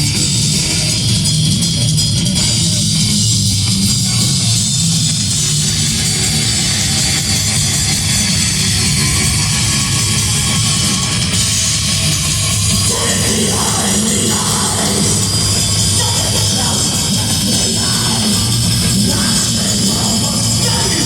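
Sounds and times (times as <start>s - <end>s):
live heavy metal band: 0.0s - 21.0s
voice: 12.7s - 21.0s.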